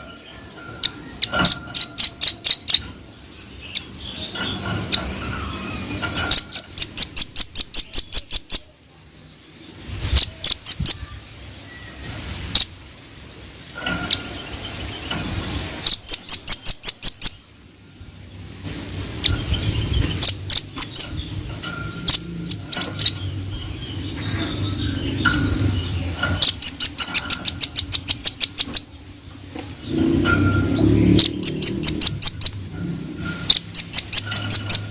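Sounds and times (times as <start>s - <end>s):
bird calling sharp high chips: 26.2s - 28.9s, 30.3s - 34.9s.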